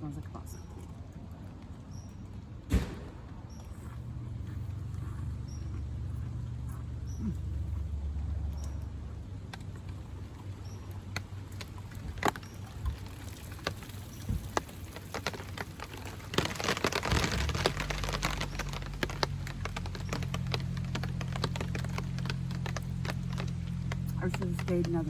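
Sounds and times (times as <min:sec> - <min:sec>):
raindrops pattering on tarp: 0:07.8 - 0:25.0.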